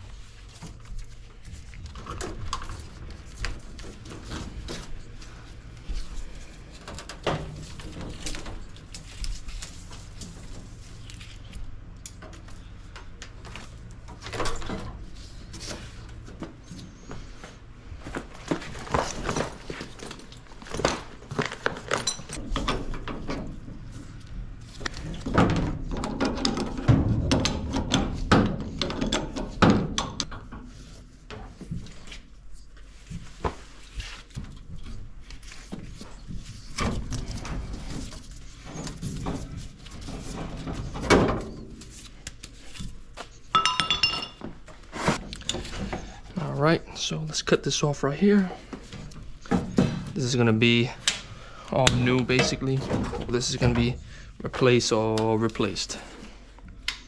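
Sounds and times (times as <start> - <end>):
tools knocking and clattering: 18.4 - 23.6, 43.5 - 44.6, 51.8 - 53.9.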